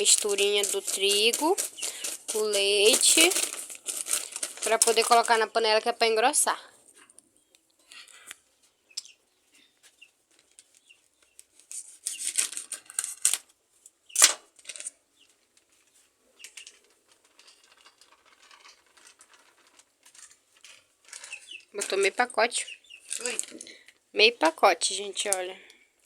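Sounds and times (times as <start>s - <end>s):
plastic package crinkling: 0.0s - 5.6s, 11.6s - 13.5s, 23.1s - 23.8s.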